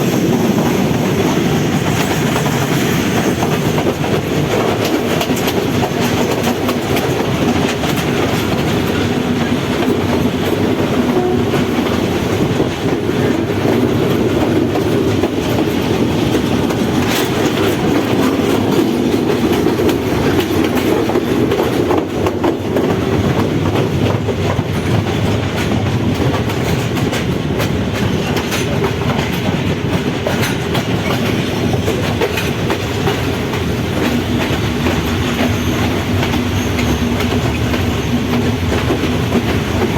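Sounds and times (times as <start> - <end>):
train rumbling along track: 0.0 - 39.9
wheels clacking over rail joints: 0.0 - 39.9.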